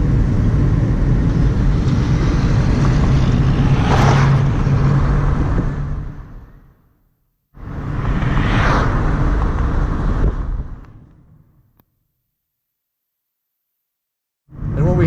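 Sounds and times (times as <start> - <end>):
car engine hum and road noise: 0.0 - 6.8, 7.6 - 11.8, 14.5 - 15.0
vehicle swishing past: 1.2 - 6.7, 7.6 - 11.0.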